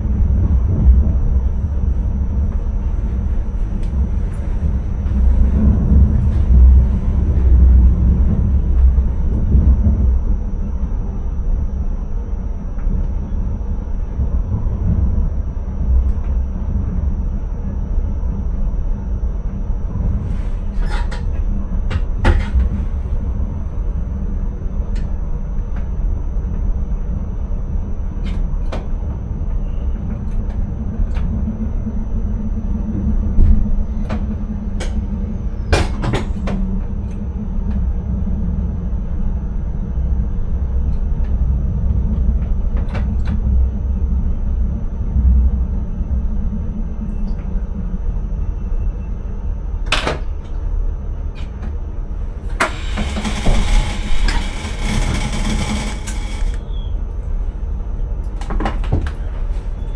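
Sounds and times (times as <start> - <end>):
train rumble with high whine: 0.0 - 59.9.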